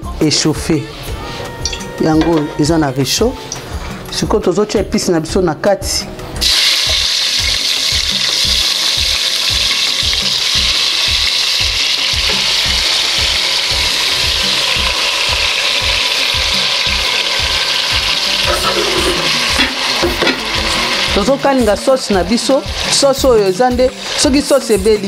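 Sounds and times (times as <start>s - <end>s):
vegetables sizzling in hot oil: 6.4s - 25.0s.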